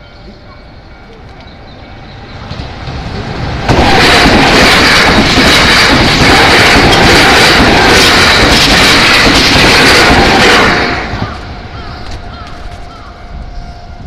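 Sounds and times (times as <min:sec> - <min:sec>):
train wheels rushing on rail: 0:00.0 - 0:14.0
fast clatter of train cars: 0:02.2 - 0:12.9.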